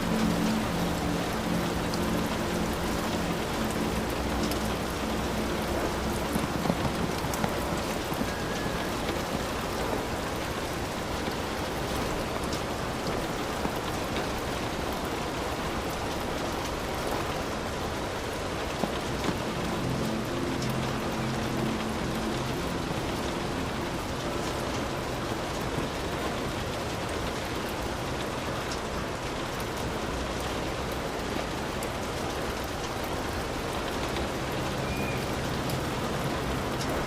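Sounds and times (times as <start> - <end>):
low hum: 0.0 - 16.2
heavy rain falling: 0.0 - 37.0
raindrops tapping: 0.0 - 37.0.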